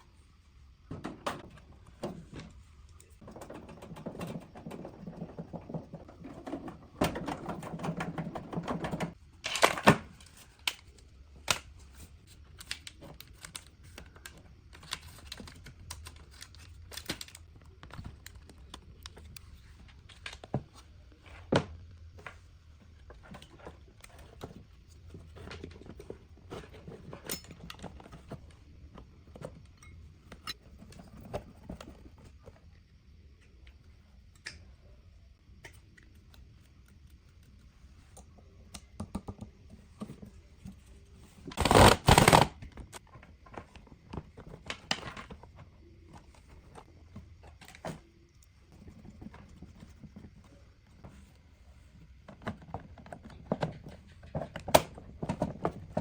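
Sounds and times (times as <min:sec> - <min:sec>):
small parts and tools clicking: 0:02.8 - 0:20.6.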